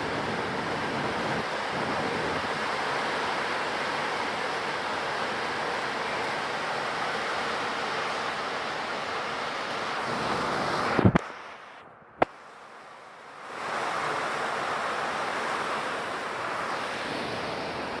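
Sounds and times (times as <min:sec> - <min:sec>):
rain hissing: 0:00.0 - 0:11.8.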